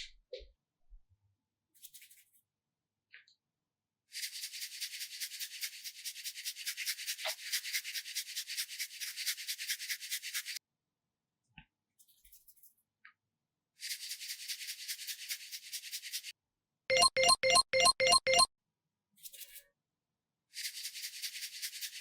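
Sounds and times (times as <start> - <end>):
scratchy rubbing strokes: 1.8 - 2.4, 4.1 - 10.6, 13.8 - 16.3, 20.6 - 22.0.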